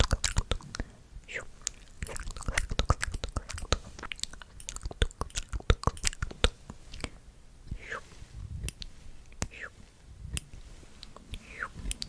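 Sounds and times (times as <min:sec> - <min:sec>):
wet mouth clicks and smacks: 0:00.0 - 0:07.8.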